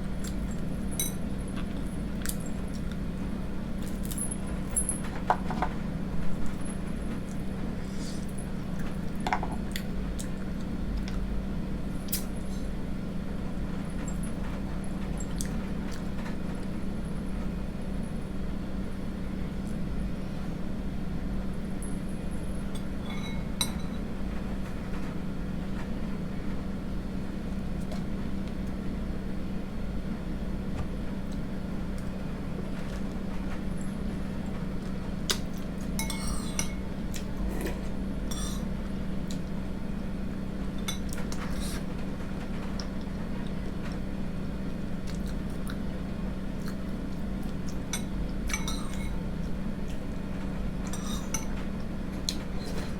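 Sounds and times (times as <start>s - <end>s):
steady low hum: 0.0s - 52.9s
spoon clinking against a bowl: 1.0s - 1.3s, 22.8s - 24.0s, 36.0s - 36.9s, 47.9s - 49.2s.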